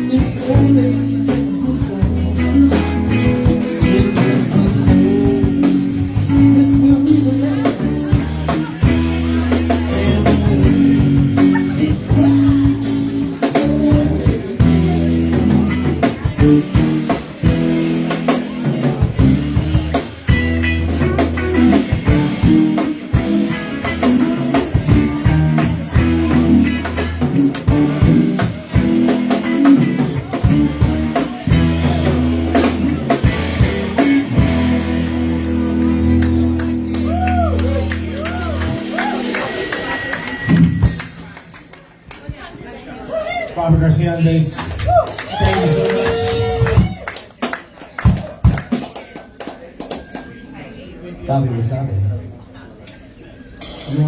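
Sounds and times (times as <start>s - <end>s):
drum kit hits: 0.0s - 41.3s
bass guitar notes: 0.0s - 41.7s, 43.7s - 47.1s
electric guitar: 0.0s - 41.8s, 44.6s - 48.7s.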